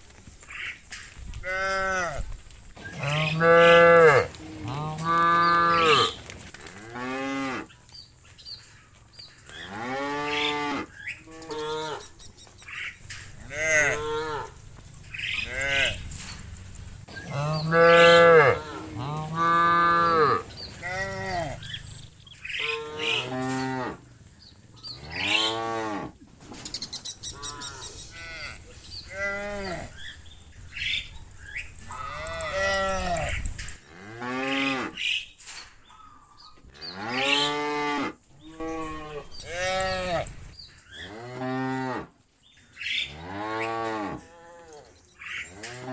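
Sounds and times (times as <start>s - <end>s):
cows mooing: 2.8s - 7.7s, 9.5s - 12.2s, 12.8s - 24.1s, 24.8s - 26.2s, 27.3s - 30.2s, 30.8s - 35.1s, 36.8s - 42.1s, 42.8s - 45.9s.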